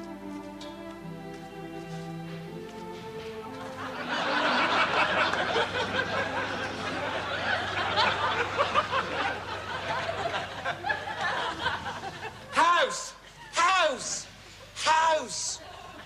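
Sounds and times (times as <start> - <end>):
studio audience laughing: 3.6 - 12.6.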